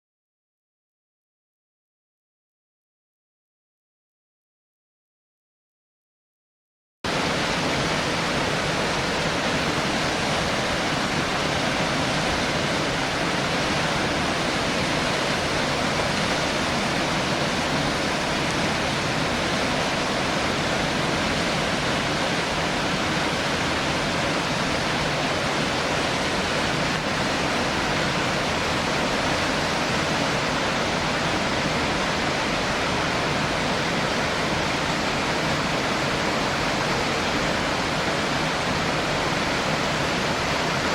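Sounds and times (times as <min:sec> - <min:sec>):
waterfall rushing: 0:07.1 - 0:40.9.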